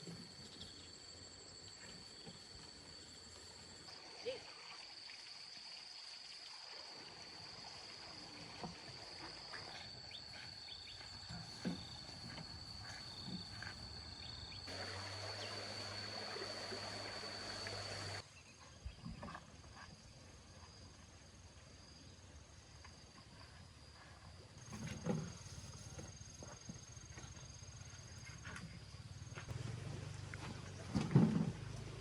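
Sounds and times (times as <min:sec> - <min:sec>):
high-pitched insect drone: 0:08.1 - 0:18.2
loud hiss with low hum: 0:14.7 - 0:18.2.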